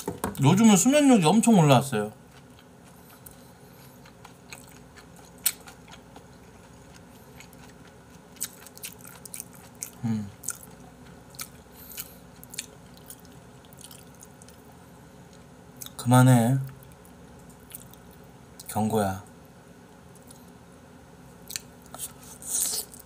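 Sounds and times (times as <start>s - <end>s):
man chewing food: 1.9s - 16.0s, 16.7s - 18.7s, 20.0s - 20.6s, 21.3s - 23.0s.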